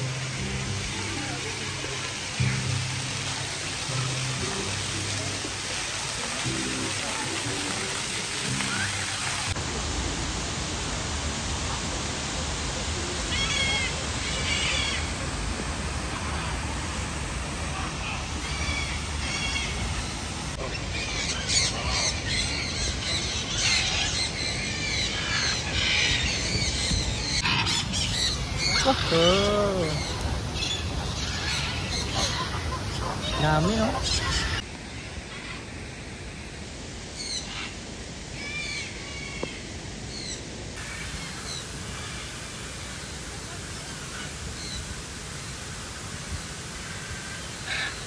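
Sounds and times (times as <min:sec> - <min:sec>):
background hiss: 0:34.0 - 0:48.0.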